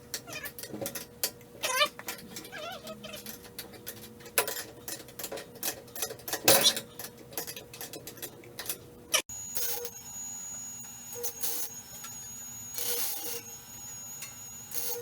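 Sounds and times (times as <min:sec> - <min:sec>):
cat meowing: 0:02.5 - 0:03.3.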